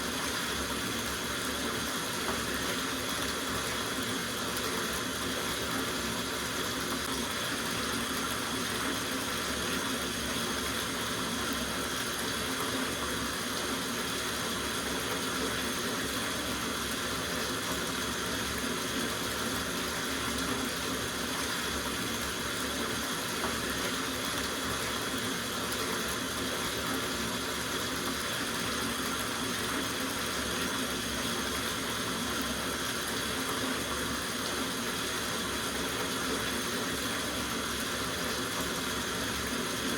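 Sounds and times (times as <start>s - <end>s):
tap water splashing into bathtub: 0.1s - 10.9s, 11.5s - 30.8s.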